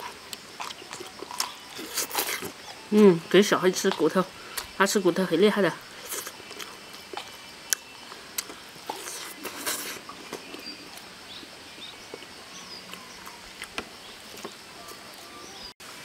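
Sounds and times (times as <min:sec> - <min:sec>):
chewing and lip-smacking: 0:00.3 - 0:02.8, 0:08.4 - 0:11.1.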